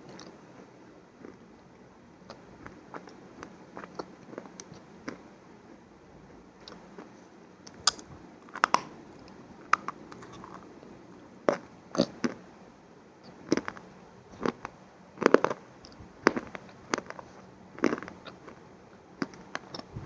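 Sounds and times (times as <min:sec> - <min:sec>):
crunchy food being chewed: 0:00.0 - 0:00.4, 0:02.3 - 0:05.3, 0:06.6 - 0:12.4, 0:13.2 - 0:20.0.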